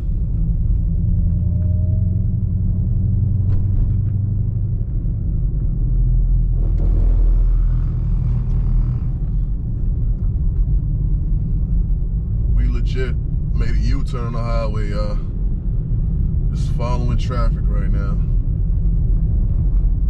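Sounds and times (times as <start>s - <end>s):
car engine and tyres rumbling: 0.0s - 20.0s.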